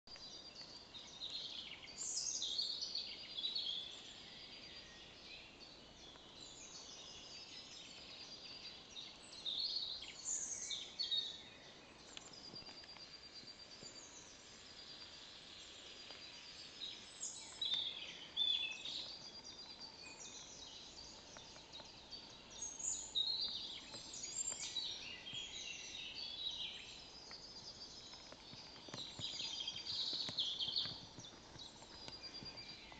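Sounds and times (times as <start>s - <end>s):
songbirds singing: 0.0s - 32.9s.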